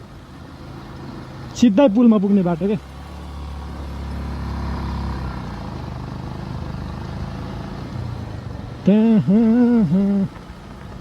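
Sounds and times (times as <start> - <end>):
motorcycle engine running: 0.0 - 11.0
road rumble: 0.0 - 11.0
rider humming or singing: 6.6 - 11.0.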